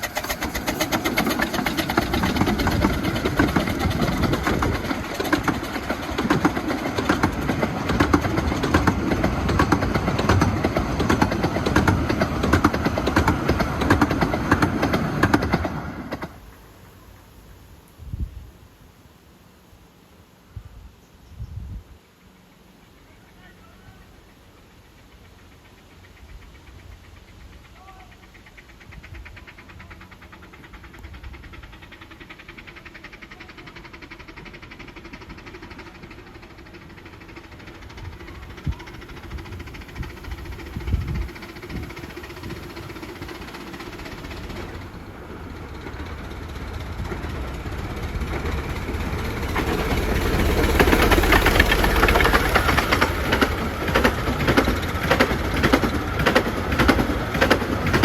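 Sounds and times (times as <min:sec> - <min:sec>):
steam train running: 0:00.0 - 0:18.7, 0:22.8 - 0:58.0.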